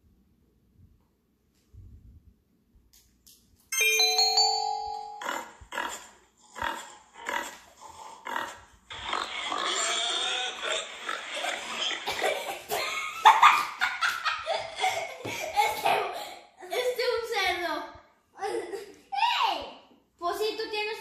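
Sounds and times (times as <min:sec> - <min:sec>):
pig grunting: 0:05.2 - 0:12.2.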